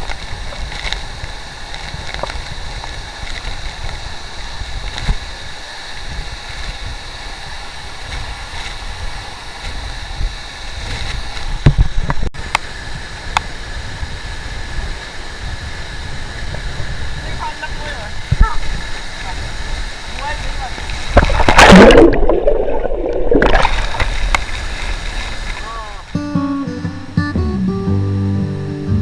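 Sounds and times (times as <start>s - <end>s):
wind rumble on microphone: 0.0s - 25.6s
flowing water rushing: 13.0s - 26.1s.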